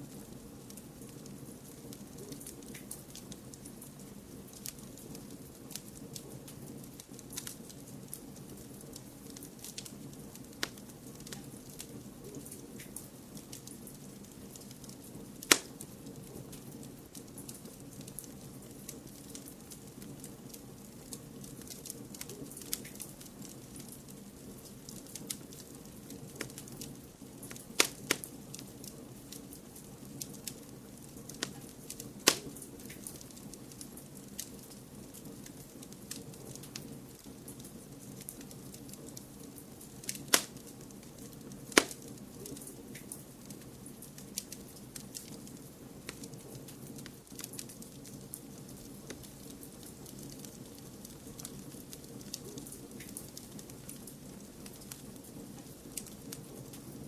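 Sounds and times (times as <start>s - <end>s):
wood fire crackling: 0.0s - 57.0s
loud fire pops: 13.6s - 57.0s.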